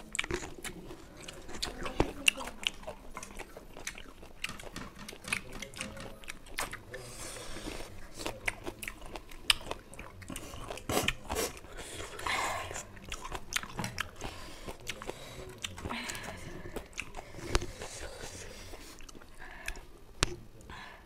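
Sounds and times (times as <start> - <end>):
wet chewing clicks and smacks: 0.0 - 7.1, 7.7 - 20.7.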